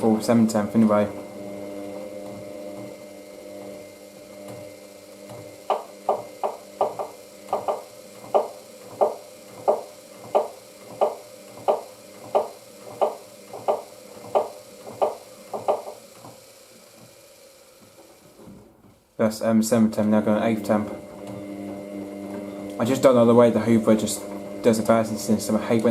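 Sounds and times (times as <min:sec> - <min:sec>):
washing machine motor hum: 0:00.0 - 0:25.9
washing machine drum knocking: 0:05.3 - 0:16.0.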